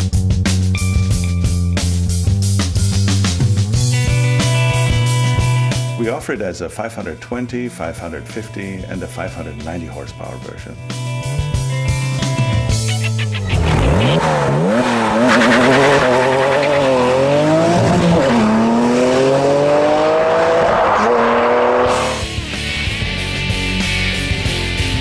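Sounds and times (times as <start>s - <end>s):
background music: 0.0s - 25.0s
car engine accelerating hard: 13.6s - 22.6s.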